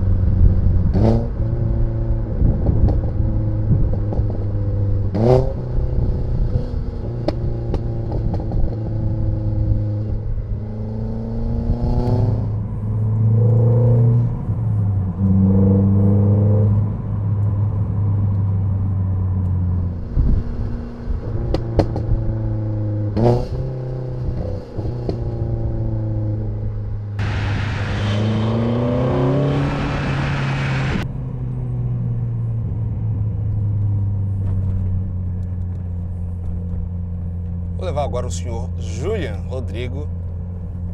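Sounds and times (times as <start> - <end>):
car engine driving: 0.0 - 40.9
loud rushing hiss: 27.2 - 31.0.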